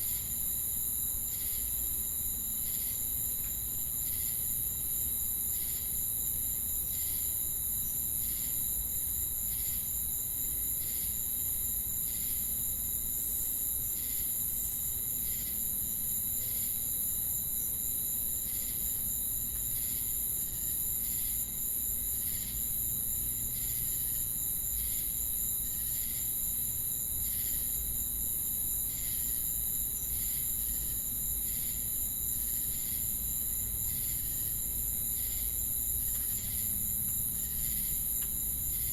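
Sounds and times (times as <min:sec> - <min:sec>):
crickets and cicadas buzzing: 0:00.0 - 0:38.9.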